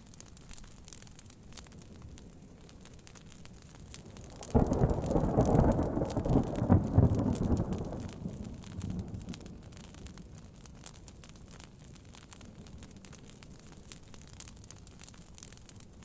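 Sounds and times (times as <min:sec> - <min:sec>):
rain patter on a tent: 0:00.0 - 0:16.0
wood fire crackling: 0:00.0 - 0:16.0
thunderclap rumbling: 0:04.2 - 0:09.8.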